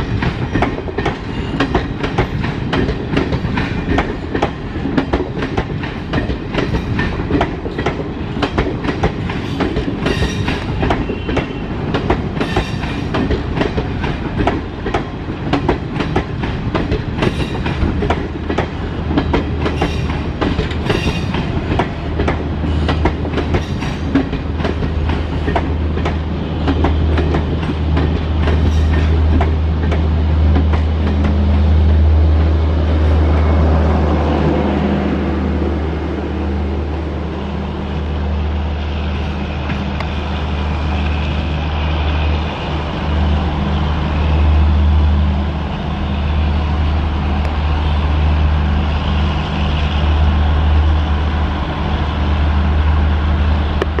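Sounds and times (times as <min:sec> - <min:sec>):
train wheels clacking over rail joints: 0:00.0 - 0:31.5
train rumble: 0:00.0 - 0:54.0.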